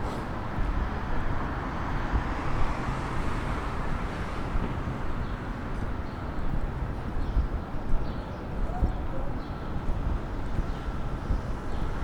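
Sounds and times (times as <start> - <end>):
traffic rumble: 0.0 - 7.1.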